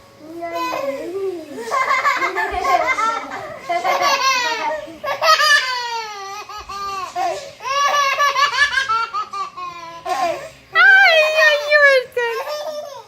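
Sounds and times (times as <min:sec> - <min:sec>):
baby laughing: 0:01.6 - 0:10.5.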